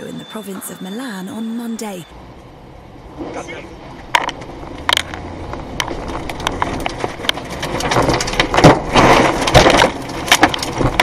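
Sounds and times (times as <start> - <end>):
violent storm wind: 2.1 - 11.0
debris knocking and cracking: 4.1 - 11.0.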